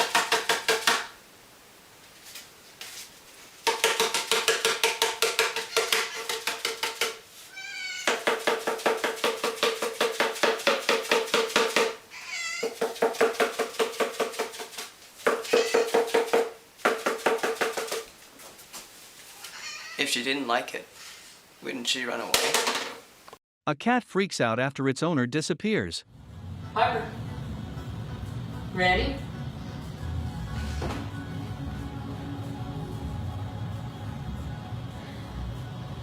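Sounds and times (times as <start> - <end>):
cardboard tube hollow bonks: 3.6 - 7.2, 8.0 - 12.0, 12.6 - 18.0
cat meowing: 5.6 - 6.3, 7.5 - 8.2, 12.1 - 12.8, 15.4 - 16.1, 19.4 - 20.1.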